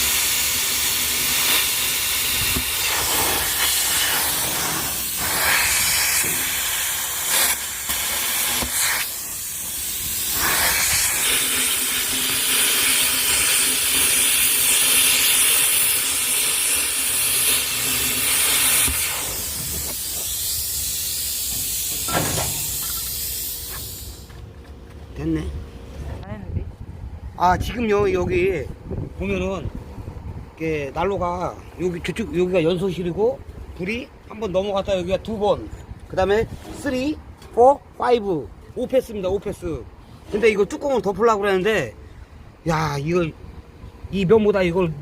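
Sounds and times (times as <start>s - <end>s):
arc welding crackling hiss: 0.0s - 24.3s.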